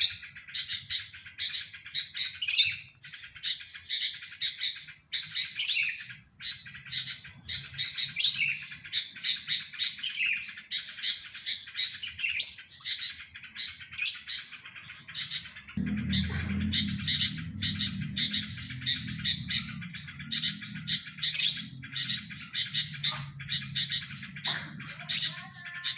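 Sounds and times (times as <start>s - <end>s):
bird chirping and warbling: 0.0s - 25.9s
low hum: 15.7s - 24.8s.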